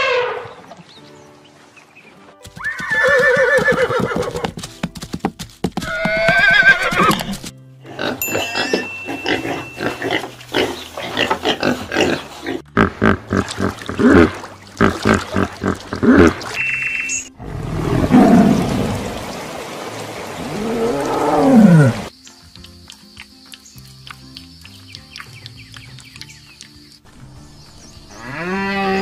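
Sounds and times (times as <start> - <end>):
background music: 0.0 - 19.2, 20.3 - 29.0
pig grunting: 9.2 - 16.5.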